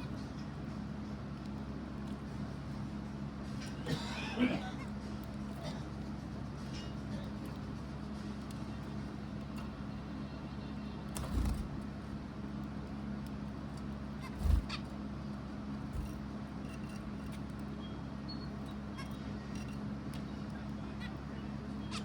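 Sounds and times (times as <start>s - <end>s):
steady low hum: 0.0s - 22.0s
faint bird calls: 14.1s - 15.0s, 17.8s - 22.0s.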